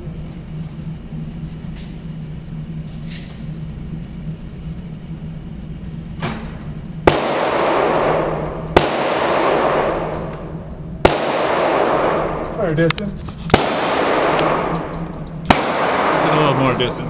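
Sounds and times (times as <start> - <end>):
handgun shots with echo: 7.1 - 12.8, 13.5 - 16.7.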